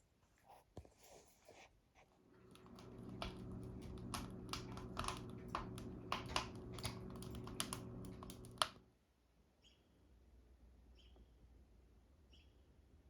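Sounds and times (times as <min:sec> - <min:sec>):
steady low hum: 0:02.3 - 0:08.8
rapid clicks and taps: 0:02.5 - 0:08.8.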